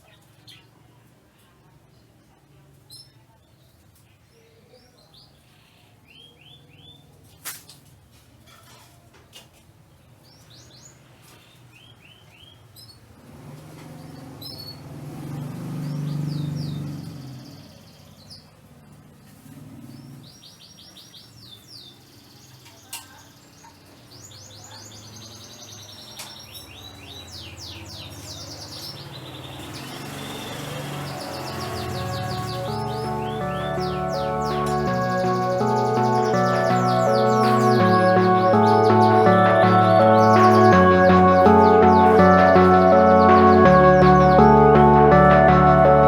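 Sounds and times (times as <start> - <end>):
canaries singing: 13.8 - 18.5, 19.9 - 46.0.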